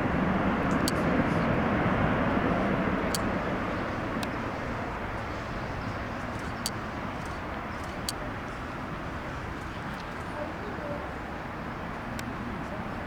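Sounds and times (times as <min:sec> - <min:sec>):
jet engines rushing: 0:00.0 - 0:09.2.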